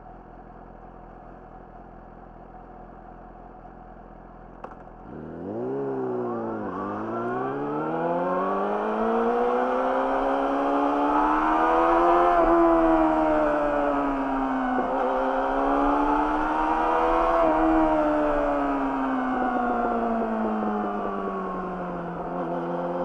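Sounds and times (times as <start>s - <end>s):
motorcycle engine revving: 4.6s - 23.0s.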